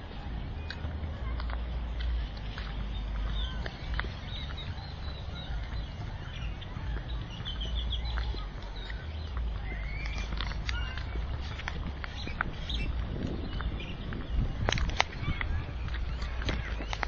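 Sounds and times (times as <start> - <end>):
low rumble on microphone: 0.0 - 17.0
small birds chirping: 0.0 - 17.0.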